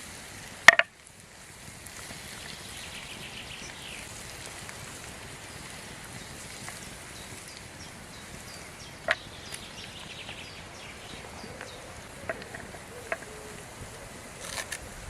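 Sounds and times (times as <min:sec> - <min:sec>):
light rain: 0:00.0 - 0:15.0
high chirping calls: 0:02.3 - 0:04.2, 0:05.5 - 0:14.7.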